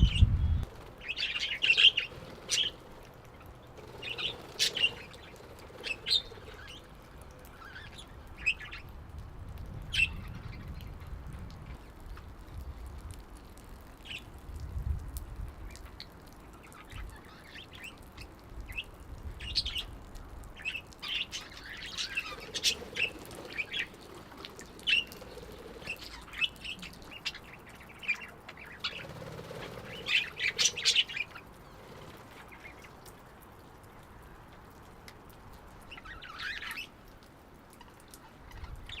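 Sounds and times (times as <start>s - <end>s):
parakeets squawking: 1.0s - 2.9s, 3.8s - 6.9s, 21.1s - 24.2s, 24.8s - 32.9s.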